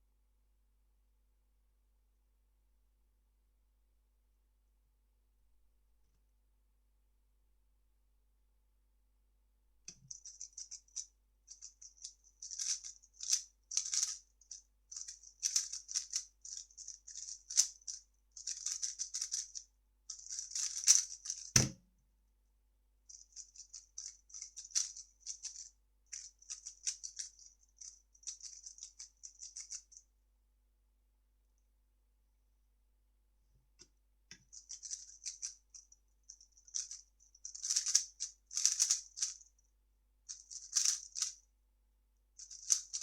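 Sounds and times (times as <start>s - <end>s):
sharp thump: 21.6s - 21.8s.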